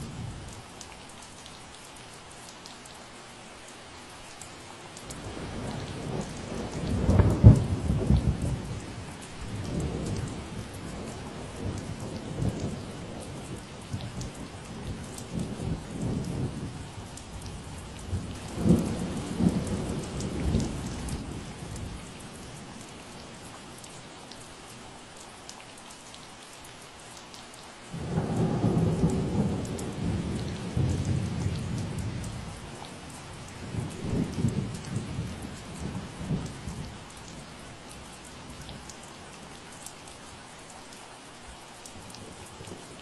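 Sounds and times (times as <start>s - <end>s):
rain falling: 0.0s - 43.0s
thunder rumbling: 17.4s - 22.0s, 28.0s - 36.9s.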